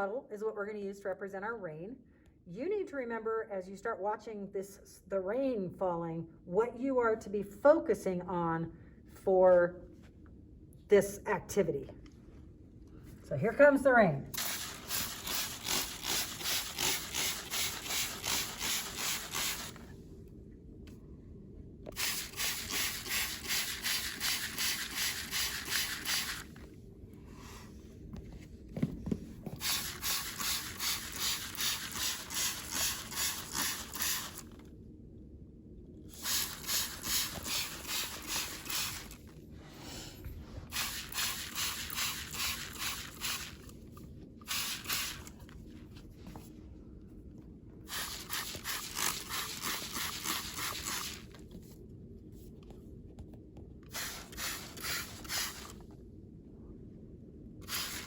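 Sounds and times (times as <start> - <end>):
water squirting from plastic bottle: 14.4 - 19.8, 22.0 - 26.6, 29.6 - 34.6, 36.2 - 39.3, 40.7 - 43.8, 44.4 - 45.4, 47.9 - 51.4, 53.9 - 55.8, 57.6 - 58.0.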